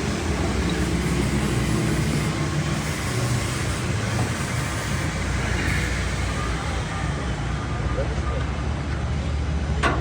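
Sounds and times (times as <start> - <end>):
heavy road vehicles rumbling: 0.0 - 10.0.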